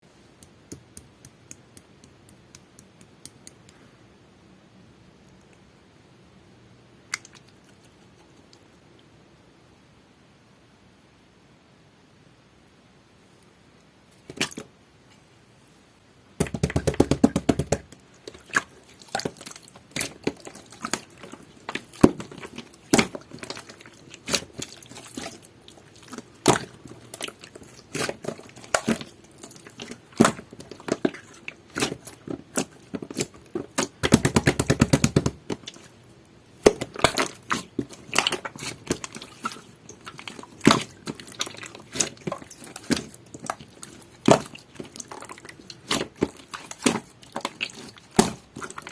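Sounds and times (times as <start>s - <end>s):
slime squishing with wet pops: 7.1s - 8.6s, 16.4s - 48.9s
slime crackling: 18.1s - 48.9s.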